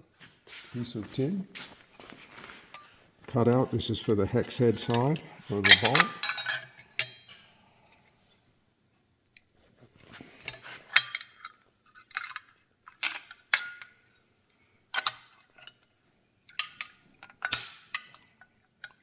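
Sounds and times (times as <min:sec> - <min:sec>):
metal parts clinking: 0:04.4 - 0:07.4, 0:10.5 - 0:13.9, 0:16.5 - 0:19.0.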